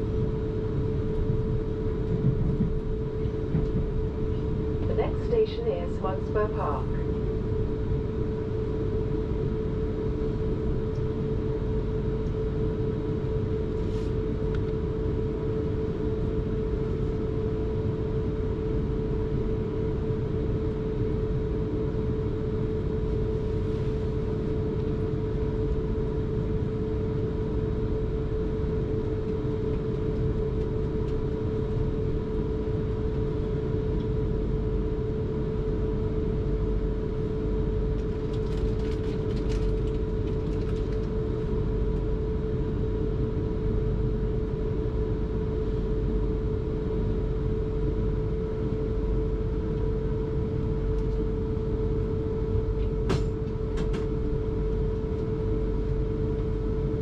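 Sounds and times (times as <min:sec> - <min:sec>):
constant hum: 0:00.0 - 0:57.0
train running rumble: 0:01.1 - 0:07.0.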